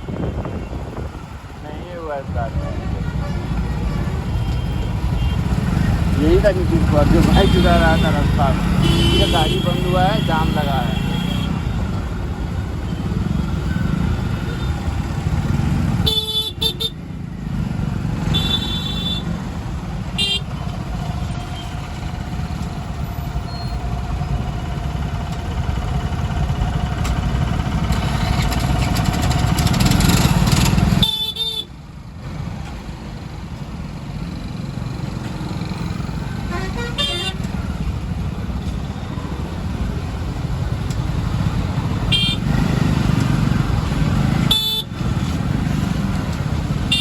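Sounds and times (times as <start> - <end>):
car engines rumbling: 0.0 - 47.0
car horn honks: 7.1 - 11.6, 16.0 - 17.0, 18.3 - 19.3, 20.2 - 20.5, 30.9 - 31.7, 36.4 - 37.5, 42.1 - 42.6, 44.4 - 44.9.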